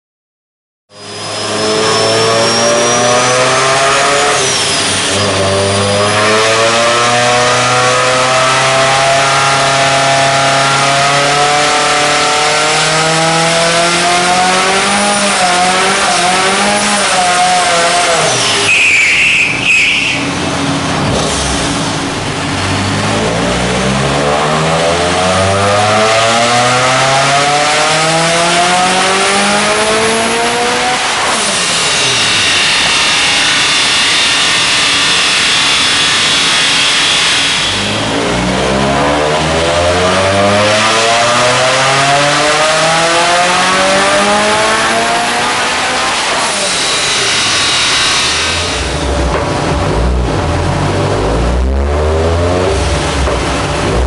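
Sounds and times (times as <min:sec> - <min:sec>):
high squeal: 0:00.9 - 0:06.0, 0:16.6 - 0:20.5, 0:31.4 - 0:38.2, 0:46.2 - 0:49.0
car engine revving at full load: 0:01.0 - 0:54.0.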